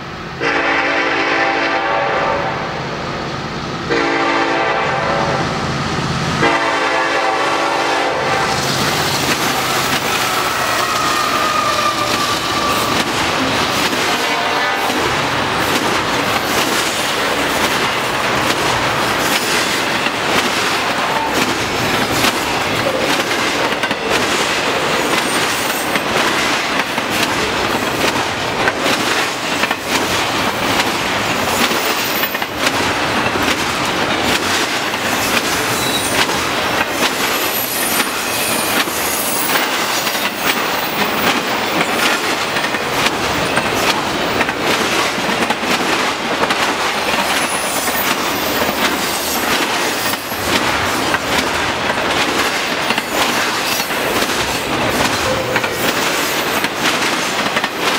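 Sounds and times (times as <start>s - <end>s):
steel wheels rushing on rail: 0.0s - 57.9s
clickety-clack over rail joints: 6.4s - 57.9s
faint high wheel squeal: 35.7s - 36.2s.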